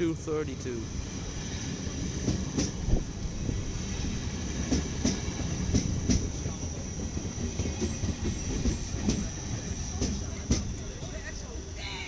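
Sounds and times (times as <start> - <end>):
train wheel and rail rumble: 0.0 - 12.0
wheels clacking on rail joints: 2.0 - 11.2.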